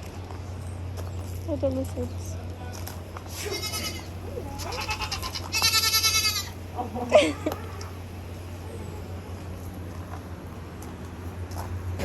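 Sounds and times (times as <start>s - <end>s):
animal bleating cries: 3.3s - 8.1s.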